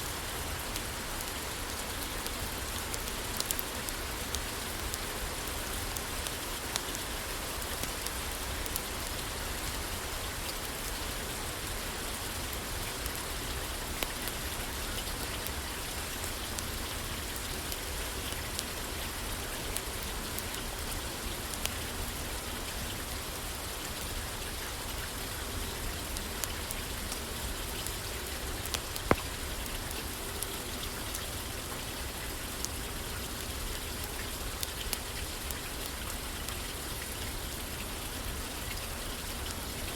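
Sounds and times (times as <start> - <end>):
rain pattering on roof: 0.1 - 39.9
sharp clicks and pops: 28.7 - 29.3.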